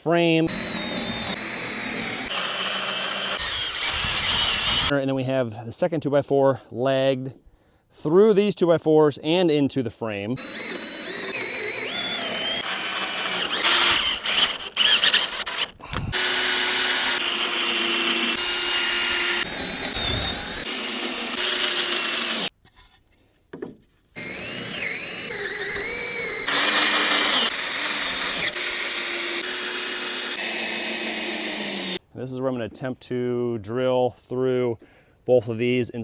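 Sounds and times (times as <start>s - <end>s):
power drill motor whining: 0.5s - 4.9s, 10.4s - 22.5s, 24.2s - 32.0s.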